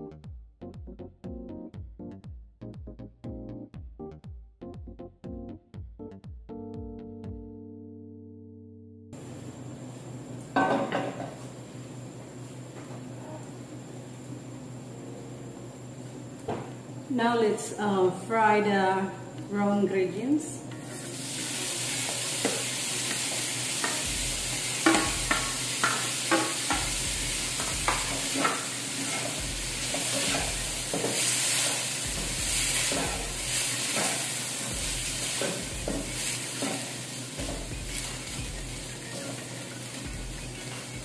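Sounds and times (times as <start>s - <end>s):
meat sizzling in a pan: 20.8s - 41.0s
spatula knocking and scraping pan: 22.0s - 38.1s.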